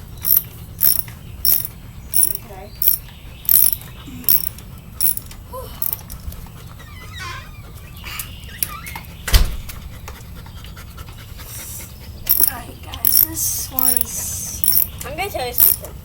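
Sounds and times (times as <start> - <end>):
tool clicks: 0.2 - 6.1, 12.3 - 14.0, 14.6 - 14.9, 15.6 - 15.9
dog panting: 6.0 - 8.2, 9.7 - 15.1.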